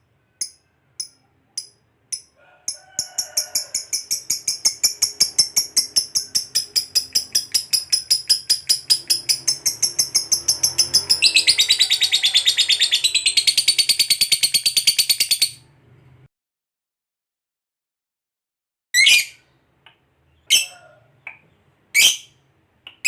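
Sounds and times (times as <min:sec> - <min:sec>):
lovebird shrill chattering trill: 0:03.8 - 0:15.6, 0:22.0 - 0:22.3.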